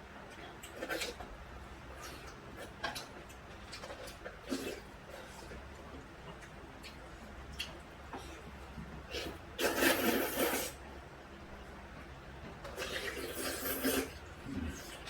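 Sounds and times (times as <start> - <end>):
person slurping noodles: 9.1 - 10.8, 12.8 - 15.0.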